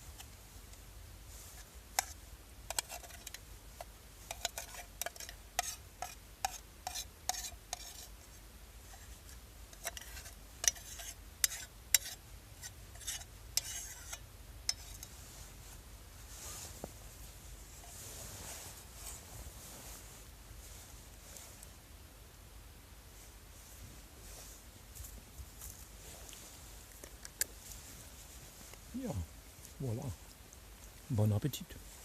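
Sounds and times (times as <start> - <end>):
spoon scraping and clinking a pan: 2.0 - 3.4, 4.3 - 8.1, 9.7 - 15.2.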